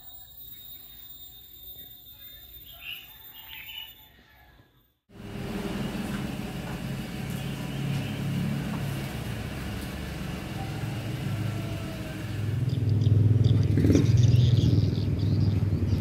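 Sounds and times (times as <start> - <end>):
car engine at low revs: 5.1 - 16.0.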